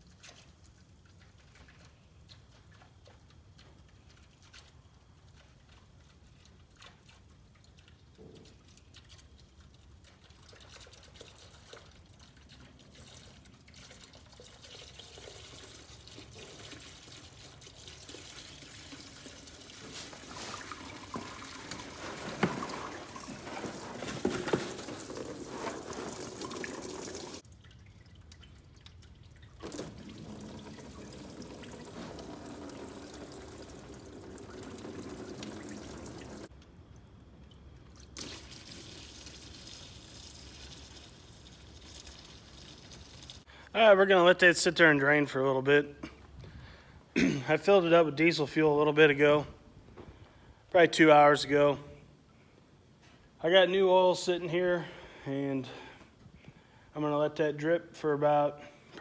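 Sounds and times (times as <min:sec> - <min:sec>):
fuel pouring into a container: 0:06.9 - 0:36.5, 0:37.5 - 0:43.5.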